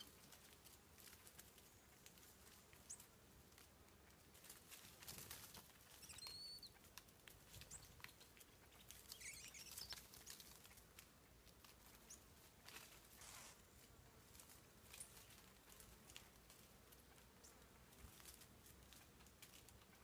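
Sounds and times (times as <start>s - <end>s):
rustling in dry leaf litter: 0.0s - 20.0s
short high bird calls: 6.0s - 6.8s, 9.0s - 10.0s.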